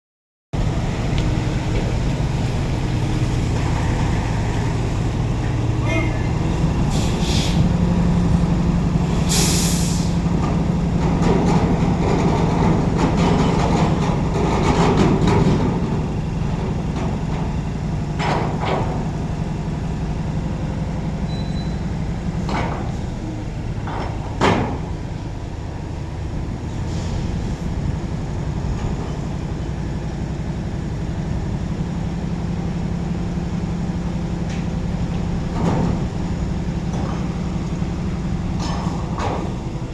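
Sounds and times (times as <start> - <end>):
diesel truck engine running: 0.6 - 39.9
air-brake hisses: 6.9 - 7.7, 9.1 - 10.2.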